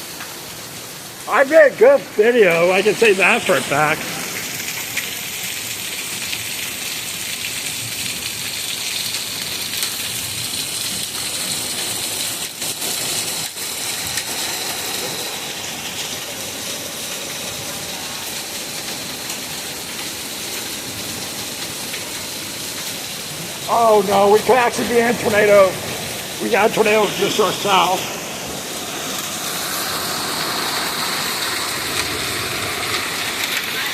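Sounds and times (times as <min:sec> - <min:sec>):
heavy rain pouring: 0:00.0 - 0:33.9.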